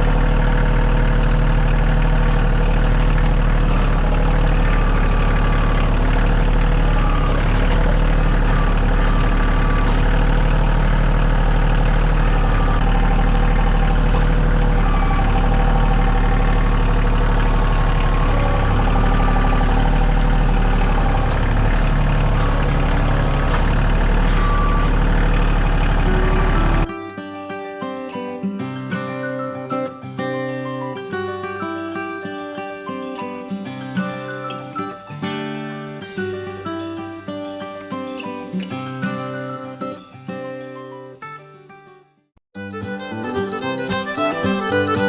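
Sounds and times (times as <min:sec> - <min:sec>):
heavy engine humming: 0:00.0 - 0:27.0, 0:42.6 - 0:45.0
acoustic guitar music: 0:00.0 - 0:45.0.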